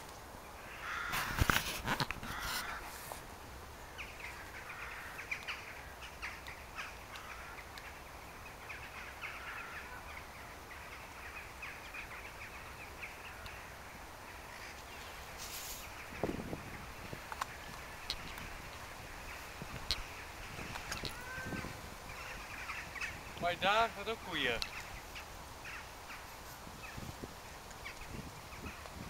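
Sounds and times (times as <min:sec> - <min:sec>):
birds chirping: 0:00.0 - 0:29.0
brief hiss: 0:15.3 - 0:16.0.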